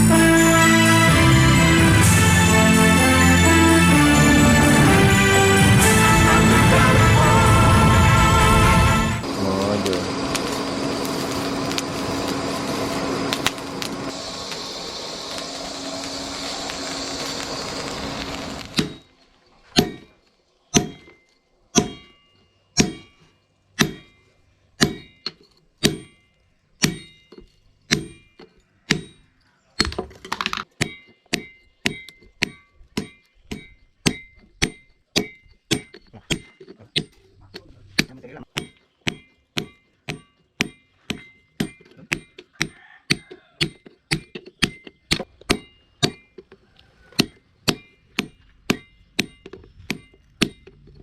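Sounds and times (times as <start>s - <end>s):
dense steady sound: 0.0s - 19.2s
hammer striking steel: 18.6s - 30.1s, 30.8s - 46.4s, 47.2s - 51.0s.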